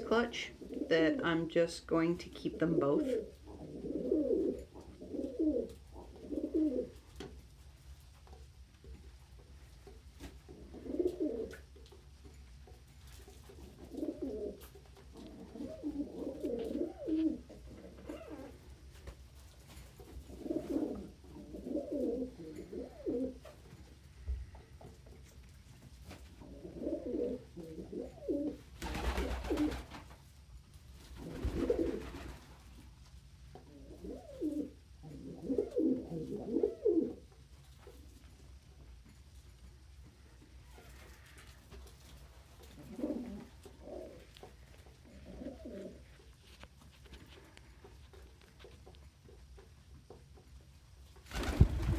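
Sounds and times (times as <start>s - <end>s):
pigeons cooing: 0.0s - 1.2s, 2.6s - 7.2s, 10.4s - 12.1s, 13.4s - 18.9s, 20.0s - 25.0s, 26.3s - 29.9s, 31.1s - 32.5s, 33.5s - 37.4s, 42.5s - 46.3s.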